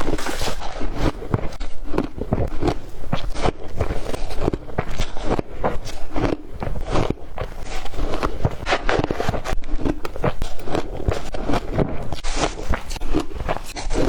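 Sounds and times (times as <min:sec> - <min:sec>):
ice being chewed: 0:00.0 - 0:14.0.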